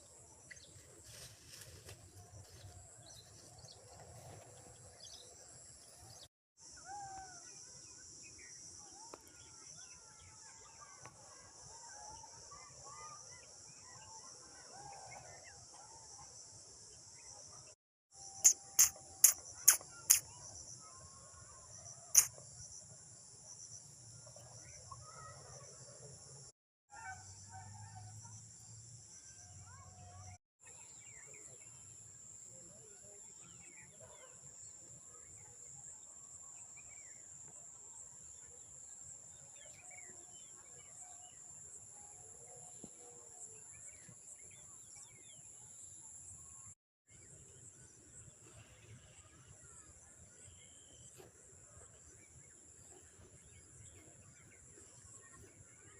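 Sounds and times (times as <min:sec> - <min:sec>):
faint bird chirps: 0:18.2 - 0:22.9
insects chirring: 0:18.4 - 0:20.4, 0:22.2 - 0:22.8
sharp clicks: 0:18.5 - 0:20.2.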